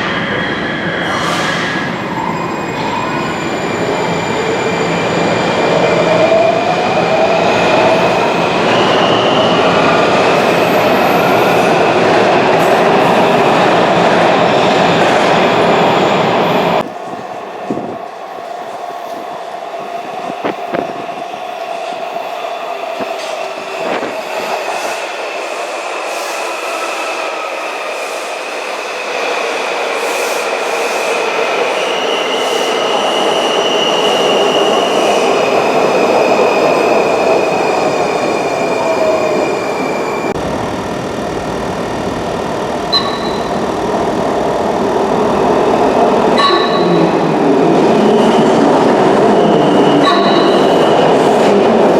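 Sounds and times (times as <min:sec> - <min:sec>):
train wheel squeal: 0:00.0 - 0:05.6, 0:30.0 - 0:40.3, 0:47.9 - 0:51.6
loud rail noise: 0:00.0 - 0:51.9
train motor whine: 0:36.7 - 0:48.0.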